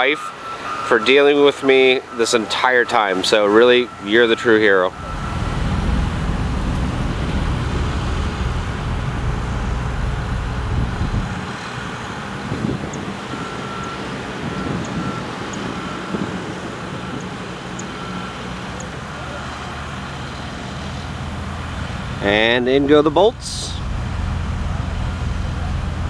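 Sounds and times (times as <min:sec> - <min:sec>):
faint beeping: 0:00.5 - 0:20.7
heavy machinery engine humming: 0:01.6 - 0:26.0.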